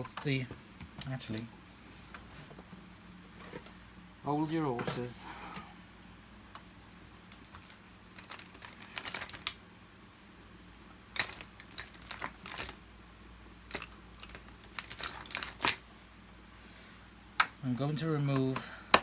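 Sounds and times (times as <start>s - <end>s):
plastic parts and tools clicking: 7.3s - 9.6s, 11.1s - 12.8s, 13.7s - 15.8s.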